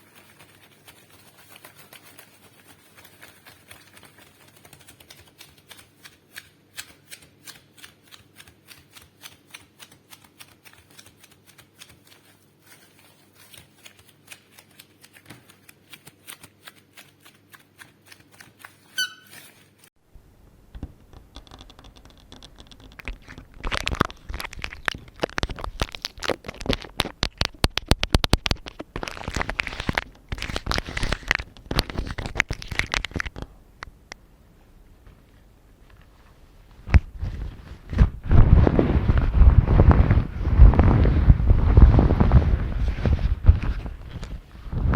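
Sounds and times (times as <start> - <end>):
rubbing and rustling: 0.0 - 20.0, 35.1 - 44.9.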